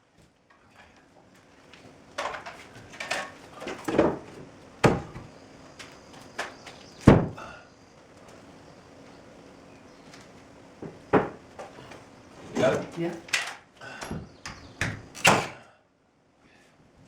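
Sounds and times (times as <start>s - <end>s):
wooden knocks on shed wall: 3.9s - 5.3s, 7.0s - 7.4s, 10.8s - 11.4s.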